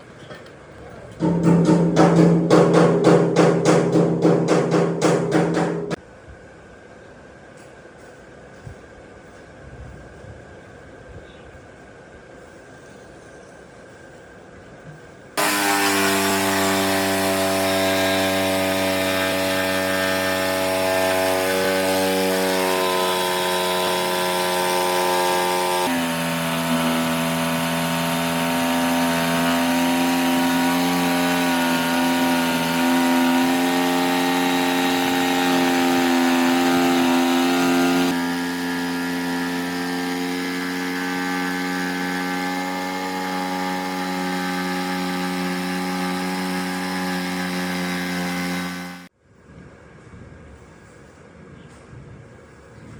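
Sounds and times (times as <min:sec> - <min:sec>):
power tool motor whining: 0:15.4 - 0:49.1.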